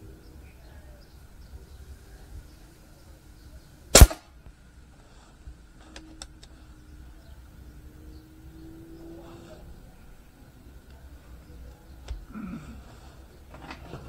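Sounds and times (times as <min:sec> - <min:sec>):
air rifle shot: 0:04.0 - 0:04.3.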